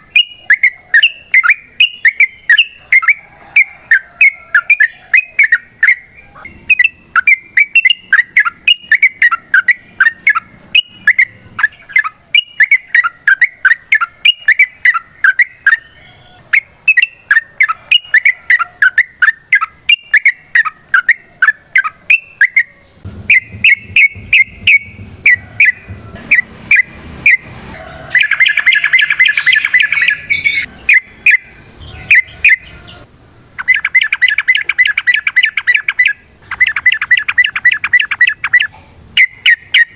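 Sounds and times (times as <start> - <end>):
bird singing chattering notes: 0.0 - 27.5, 28.1 - 39.9
low hum: 22.9 - 28.6.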